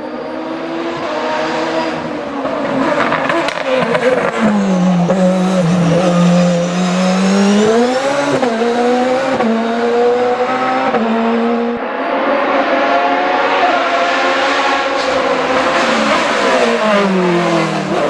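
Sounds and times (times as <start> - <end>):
race car engine shifting gears: 1.0 - 11.7.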